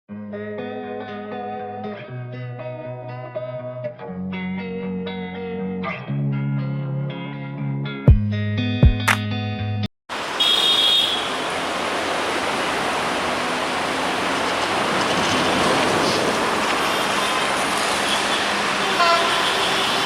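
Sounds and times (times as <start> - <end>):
intro music: 8.1 - 9.3
train rushing past: 11.6 - 20.0.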